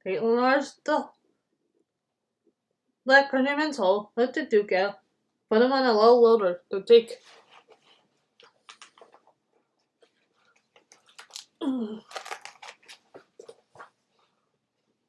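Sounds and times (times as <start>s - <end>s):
book pages turning: 7.2s - 14.0s.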